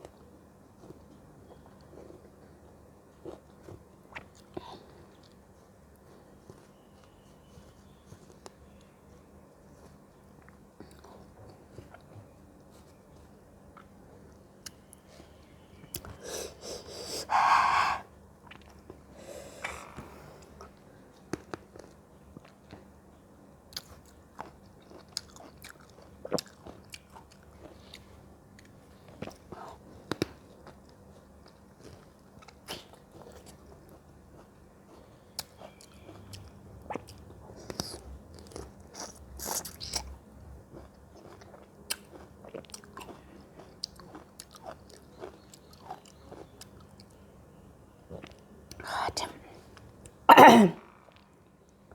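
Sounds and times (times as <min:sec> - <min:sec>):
fruit being bitten and chewed: 0:28.6 - 0:47.1.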